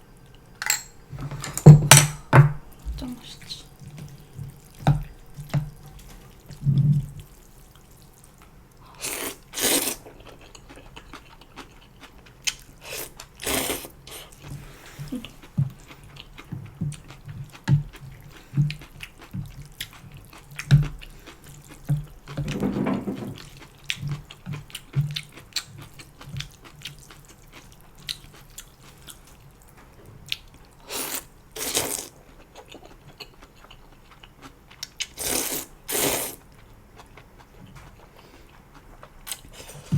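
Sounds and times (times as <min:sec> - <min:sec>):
person slurping noodles: 0:09.0 - 0:10.0, 0:12.8 - 0:15.2, 0:35.2 - 0:36.4
soft chewing clicks: 0:10.0 - 0:13.3, 0:15.2 - 0:22.4, 0:32.2 - 0:35.2.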